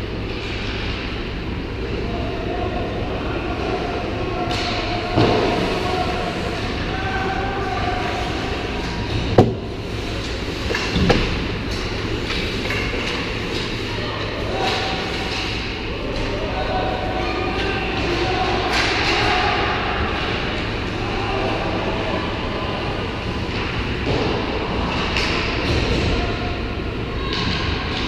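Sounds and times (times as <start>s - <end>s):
ice rink rumble: 0.0s - 28.0s
sharp knocks: 9.3s - 9.7s.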